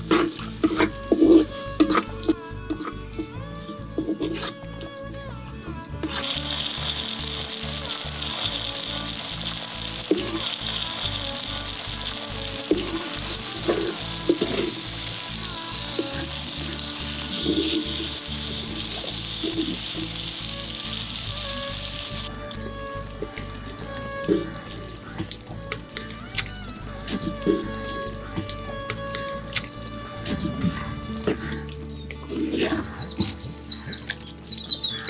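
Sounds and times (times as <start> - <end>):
shallots sizzling in hot oil: 6.0 - 22.3.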